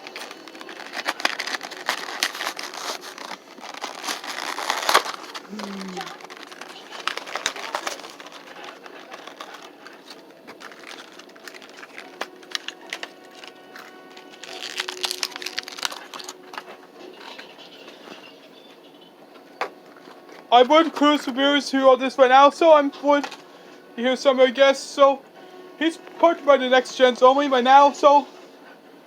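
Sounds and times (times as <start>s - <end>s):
toy packaging crinkling: 0.0s - 18.3s, 22.6s - 23.4s.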